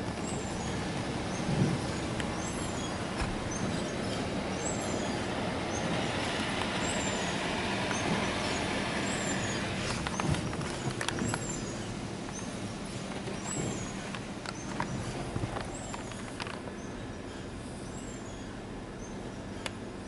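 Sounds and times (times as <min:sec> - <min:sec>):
car wash water spraying on car: 0:00.0 - 0:16.6.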